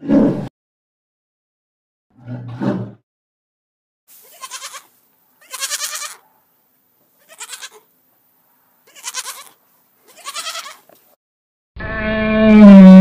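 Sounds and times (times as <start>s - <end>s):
deep growl: 2.2s - 3.0s
lambs bleating: 4.2s - 6.2s, 7.2s - 7.9s, 8.9s - 10.8s.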